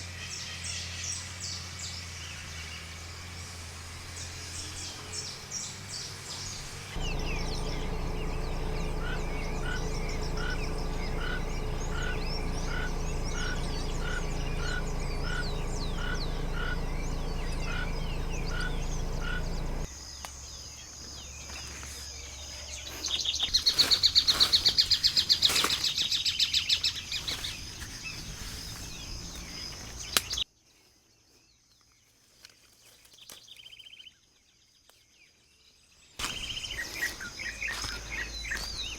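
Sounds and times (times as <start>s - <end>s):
loud rapid bird trill: 0.3s - 20.1s
birds chirping and calling: 4.2s - 20.0s, 20.6s - 30.4s, 36.2s - 38.9s.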